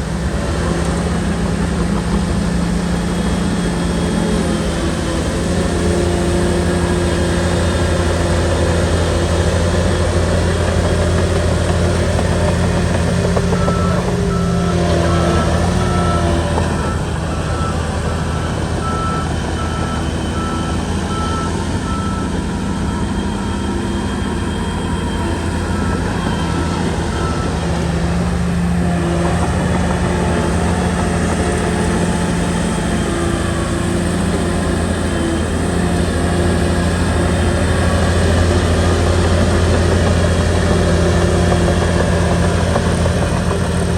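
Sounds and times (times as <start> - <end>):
bulldozer diesel engine running: 0.0 - 43.9
reversing alarm beeps: 12.2 - 43.6.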